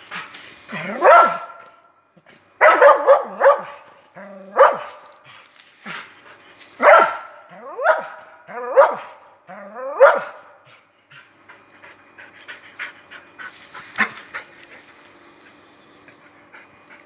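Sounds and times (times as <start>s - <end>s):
dogs barking: 0.8s - 1.7s, 2.6s - 5.0s, 6.8s - 9.2s, 9.8s - 10.6s.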